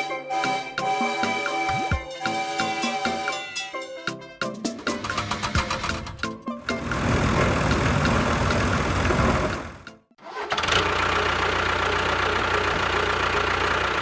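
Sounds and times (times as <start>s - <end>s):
motor running: 5.1s - 9.9s.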